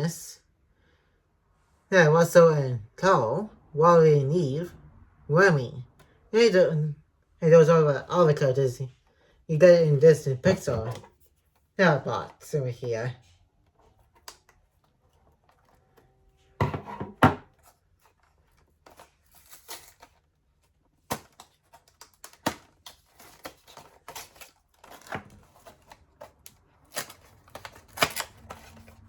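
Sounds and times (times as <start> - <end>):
cardboard scraping or tearing: 15.0 - 29.0.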